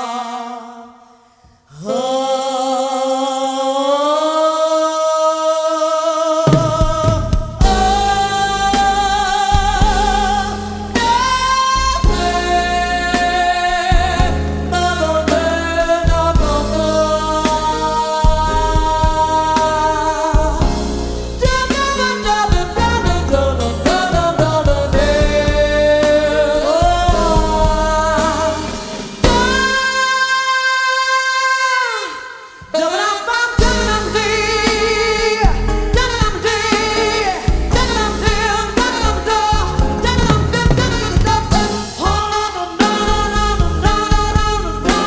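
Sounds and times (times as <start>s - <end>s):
woman singing jazz: 6.4s - 45.0s
bass and drums: 6.5s - 30.0s, 33.6s - 45.0s.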